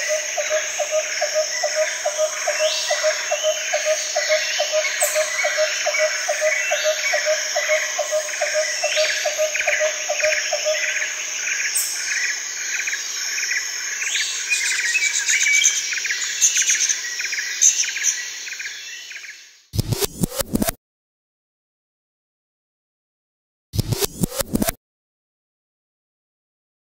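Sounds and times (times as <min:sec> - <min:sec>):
insect trill: 0:00.0 - 0:19.2
birds chirping: 0:00.0 - 0:19.6.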